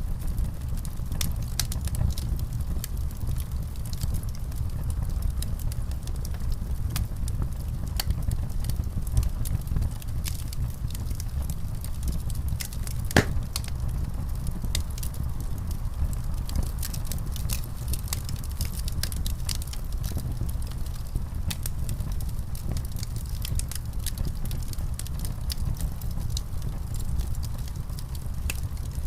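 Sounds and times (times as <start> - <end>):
low rumble of flames: 0.0 - 29.0
fire pops and snaps: 0.1 - 29.0.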